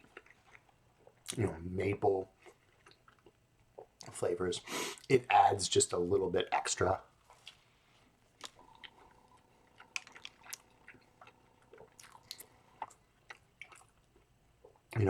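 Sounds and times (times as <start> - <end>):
faint chewing: 0.0 - 1.6, 2.2 - 4.2, 7.2 - 15.0.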